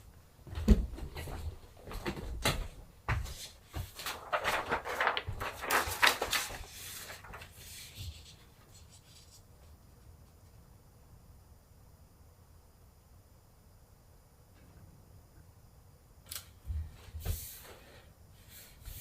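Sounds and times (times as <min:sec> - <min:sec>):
scratchy rubbing and rustling: 0:03.9 - 0:09.5.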